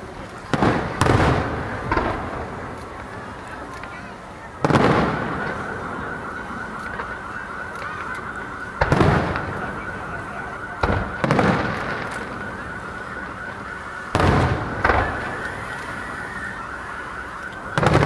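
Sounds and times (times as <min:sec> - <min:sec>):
fireworks shells booming: 0:00.0 - 0:18.0.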